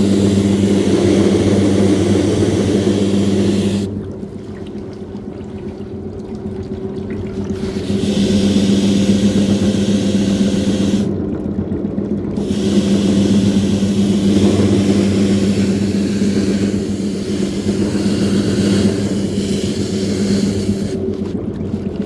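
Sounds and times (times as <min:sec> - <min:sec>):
machine motor hum: 0:00.0 - 0:04.2, 0:07.6 - 0:11.3, 0:12.4 - 0:22.0
water swishing and splashing: 0:00.0 - 0:09.6, 0:11.0 - 0:22.0.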